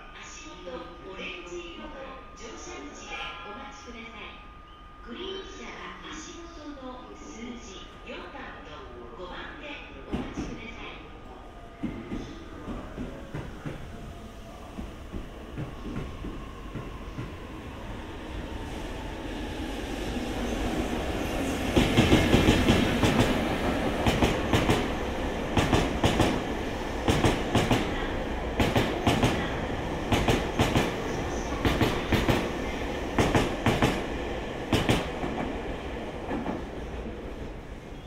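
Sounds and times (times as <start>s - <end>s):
train passing: 0.0s - 38.0s.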